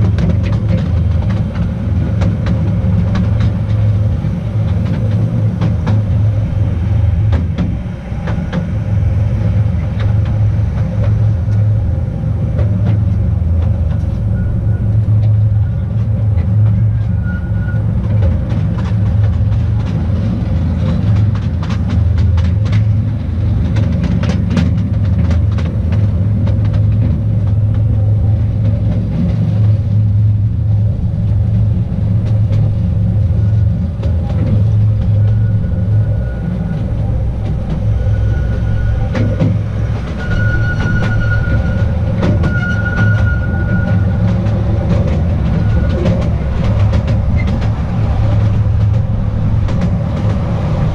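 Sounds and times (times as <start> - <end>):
train wheels rumbling on rail: 0.0 - 50.9
high wheel squeal: 6.0 - 19.5, 30.4 - 50.9
clicks over the track: 18.0 - 27.9.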